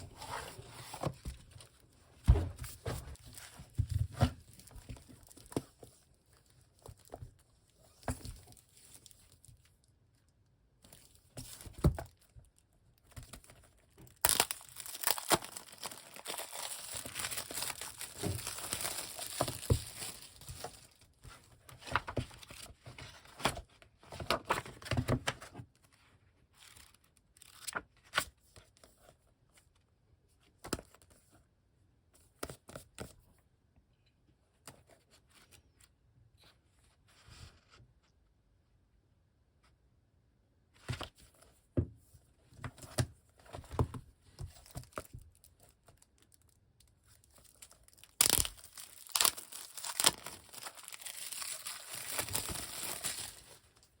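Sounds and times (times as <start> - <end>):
books being handled: 0.0 - 9.2, 13.0 - 25.7, 48.2 - 54.0
packaging tearing and crinkling: 14.0 - 20.9, 47.2 - 53.8.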